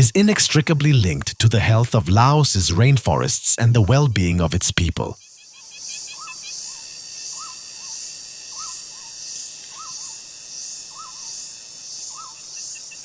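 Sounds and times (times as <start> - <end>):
high-pitched insect chorus: 5.2 - 13.0.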